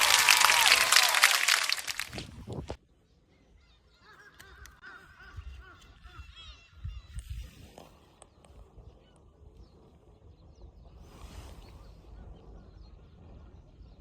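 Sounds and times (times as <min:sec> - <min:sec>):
faint bird calls: 0:03.2 - 0:09.8.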